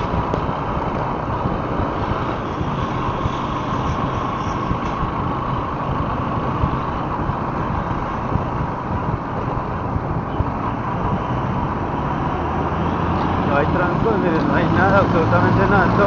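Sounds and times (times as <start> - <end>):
motorcycle engine running: 0.0 - 11.9
road noise: 0.0 - 16.0
wind noise: 0.0 - 16.0.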